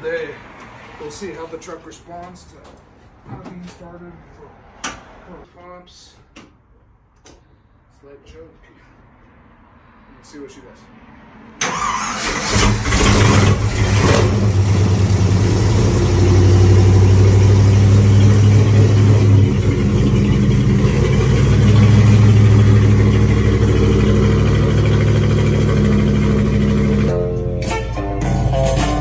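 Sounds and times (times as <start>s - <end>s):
engine idling: 12.5s - 27.1s.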